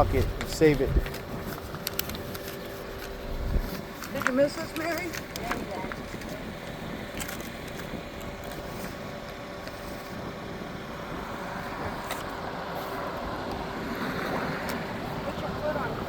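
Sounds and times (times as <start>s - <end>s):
vehicle passing: 0.0s - 1.5s
road traffic noise: 0.0s - 16.0s.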